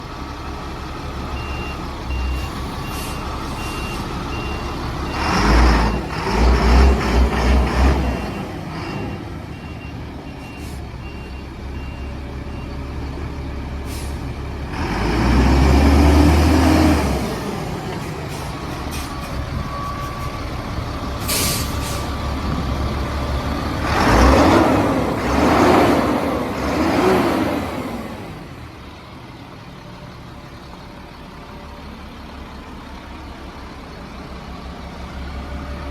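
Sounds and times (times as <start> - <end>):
diesel truck engine running: 0.0 - 35.9
reversing beeper: 1.3 - 6.1, 18.9 - 22.1
short hiss of air: 13.9 - 14.3, 21.2 - 22.2.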